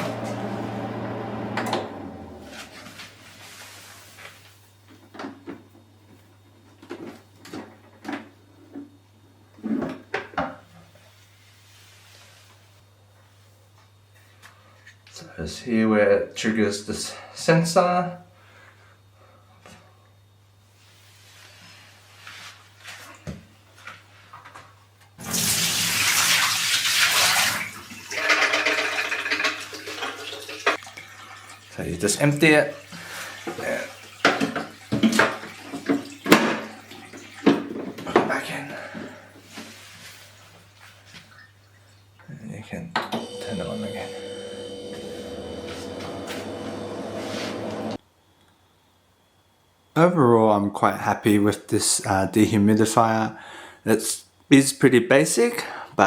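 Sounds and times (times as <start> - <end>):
water pouring from plastic tank: 25.2 - 37.7.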